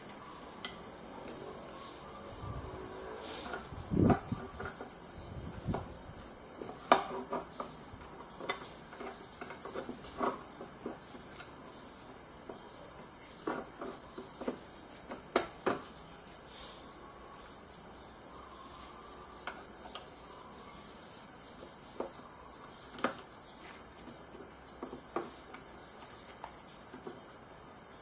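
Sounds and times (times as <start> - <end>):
faint high hiss: 0.0 - 28.0.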